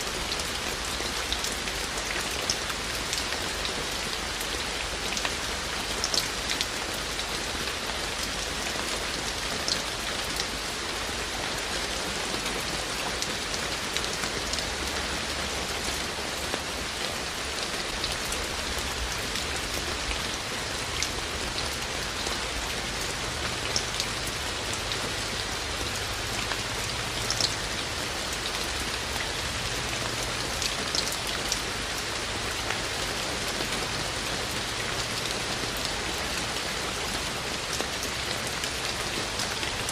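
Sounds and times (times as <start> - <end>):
raindrops striking close by: 0.0 - 39.9
steady rain falling: 0.0 - 39.9.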